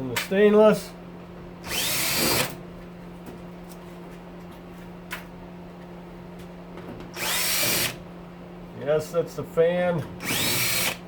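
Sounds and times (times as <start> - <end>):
stove fan humming: 0.0 - 11.0
power drill: 1.6 - 2.6, 7.2 - 8.0, 10.2 - 11.0.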